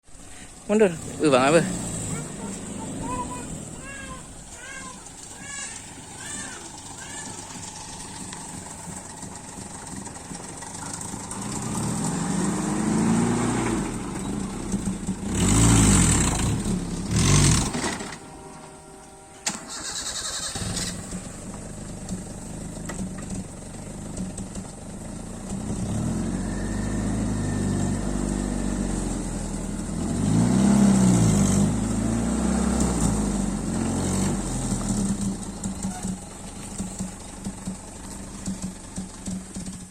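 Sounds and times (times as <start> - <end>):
saw machine engine revving: 0.7 - 18.2, 19.4 - 21.6.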